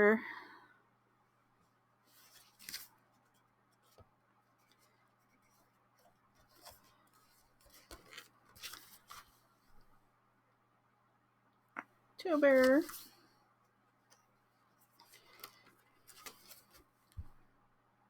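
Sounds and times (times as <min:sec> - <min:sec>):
calendar pages rustling: 0:02.1 - 0:03.0, 0:04.6 - 0:09.5, 0:12.3 - 0:13.2, 0:14.8 - 0:17.3.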